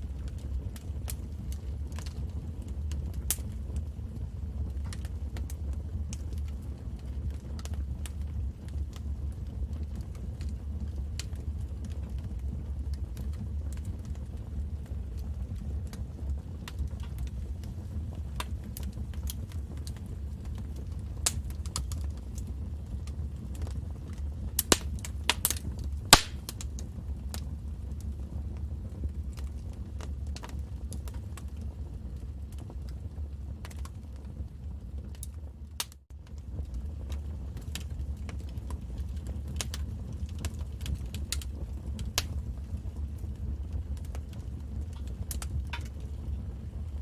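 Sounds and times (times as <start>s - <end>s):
low rumble of flames: 0.0s - 47.0s
wood fire crackling: 0.0s - 47.0s
sharp pops of fire: 21.2s - 27.4s, 37.1s - 42.7s.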